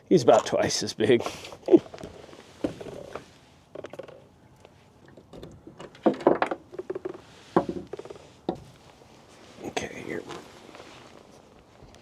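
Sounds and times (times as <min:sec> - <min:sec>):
knocks and clicks of handling gear: 0:01.8 - 0:08.9.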